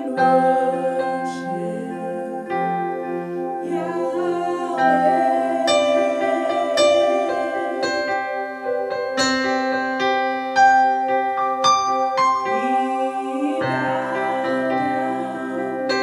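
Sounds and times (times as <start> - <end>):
piano single notes: 0.0 - 16.0
sustained pad chords: 0.0 - 16.0.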